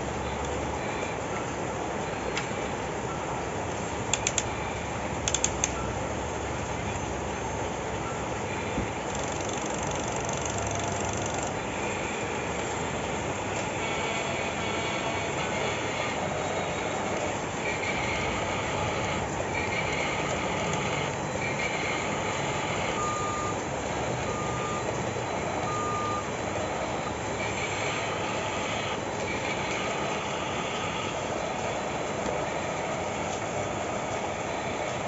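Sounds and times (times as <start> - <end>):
hydraulic pump running: 9.1 - 11.6
electronic reversing beeps: 21.4 - 23.6, 24.2 - 28.7.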